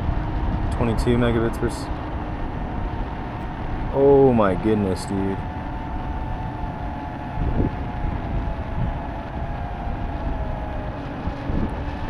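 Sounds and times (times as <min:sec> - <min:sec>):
faint thin whine: 0:00.0 - 0:12.0
wind buffeting the microphone: 0:00.0 - 0:12.0.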